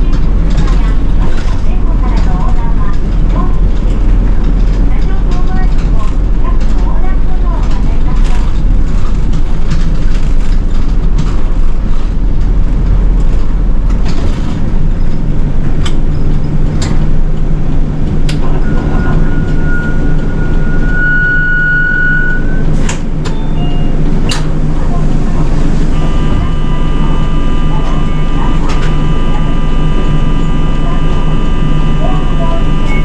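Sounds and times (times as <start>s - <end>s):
bus engine and road rumble: 0.0s - 33.0s
high-pitched tone: 18.4s - 22.7s, 25.9s - 33.0s.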